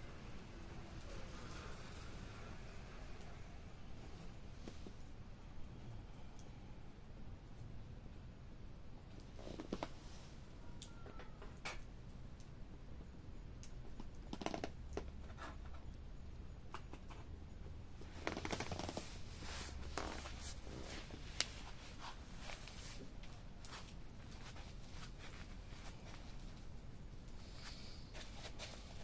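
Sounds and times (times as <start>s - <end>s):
fire popping: 10.8s - 29.0s
campfire crackling: 11.5s - 29.0s.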